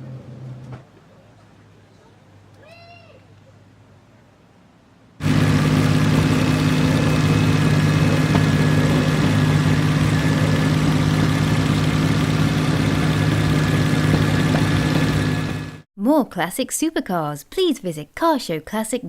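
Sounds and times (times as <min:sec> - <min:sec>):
car engine idling loudly: 0:05.2 - 0:15.8.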